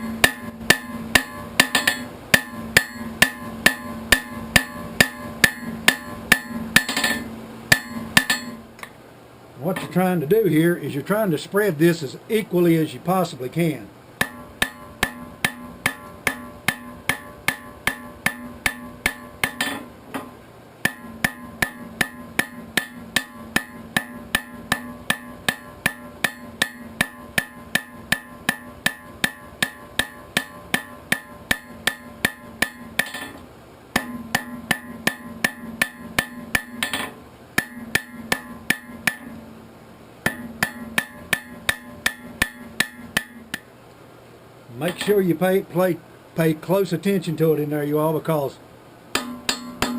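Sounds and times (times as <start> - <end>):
anvil ringing: 0.0 - 8.6, 14.2 - 33.4, 34.0 - 39.5, 40.2 - 43.6, 49.2 - 49.9
hammer striking hot steel on anvil: 0.0 - 9.0, 14.2 - 39.5, 40.2 - 43.7, 44.8 - 45.2, 49.1 - 49.9.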